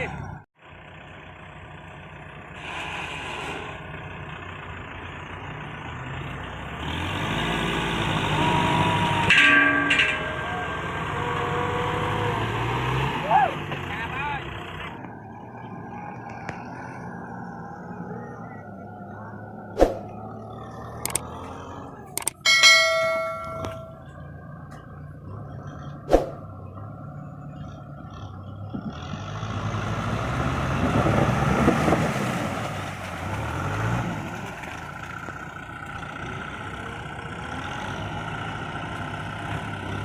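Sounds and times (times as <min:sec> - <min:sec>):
tractor diesel engine running: 0:00.0 - 0:40.0
metallic clang ringing: 0:09.3 - 0:11.9, 0:22.2 - 0:24.1.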